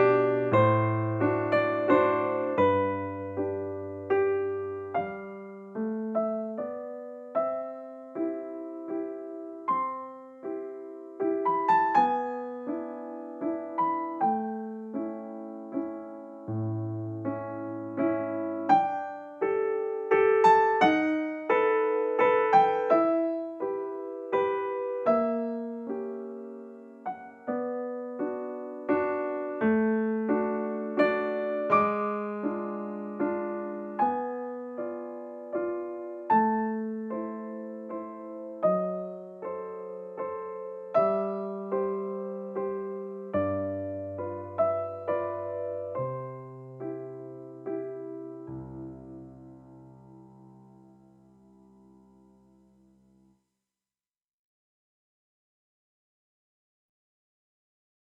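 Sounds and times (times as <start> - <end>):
gentle solo piano piece: 0.0 - 53.4.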